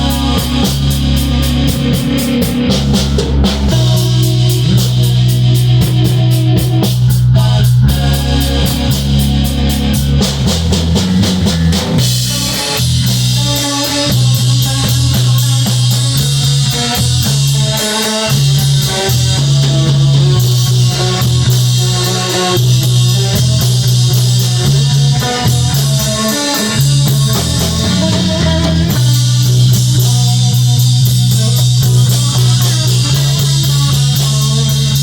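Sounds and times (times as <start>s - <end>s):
bass guitar: 0.0s - 35.0s
drum kit: 0.0s - 35.0s
electric guitar: 0.0s - 35.0s.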